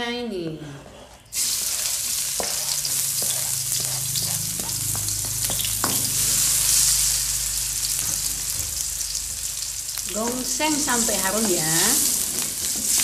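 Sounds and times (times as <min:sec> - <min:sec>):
vegetables sizzling in hot oil: 0:01.3 - 0:13.0
spatula knocking and scraping pan: 0:01.7 - 0:06.4, 0:10.2 - 0:13.0.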